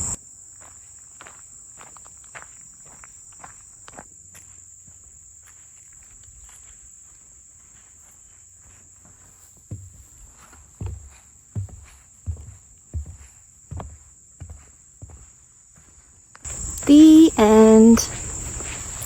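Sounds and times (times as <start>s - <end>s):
insects chirping: 0.0s - 19.0s
light footsteps: 8.2s - 19.0s.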